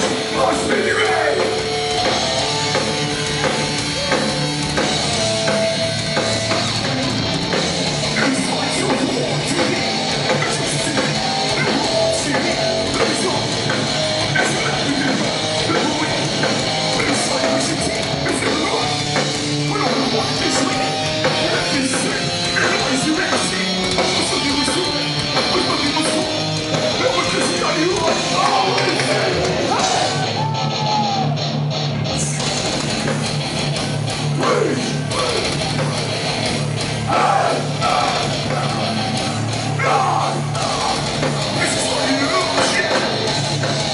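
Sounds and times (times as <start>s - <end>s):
punk band playing live: 0.0s - 43.9s
shouted vocals: 0.3s - 4.7s, 27.0s - 31.4s, 37.0s - 43.3s.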